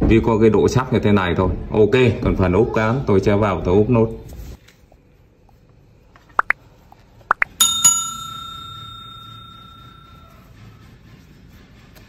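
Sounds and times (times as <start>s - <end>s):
metallic strikes with bell-like ring: 7.5s - 10.6s.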